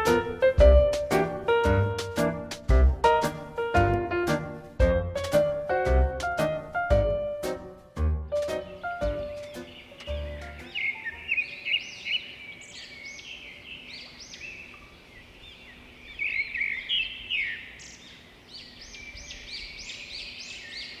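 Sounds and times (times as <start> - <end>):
small birds chirping: 8.3 - 21.0.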